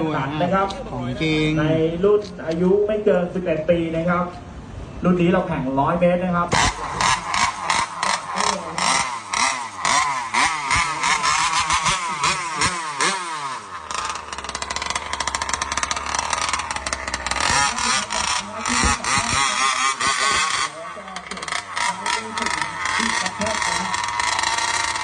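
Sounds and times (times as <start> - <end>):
small motorbike engines revving: 6.5 - 25.0.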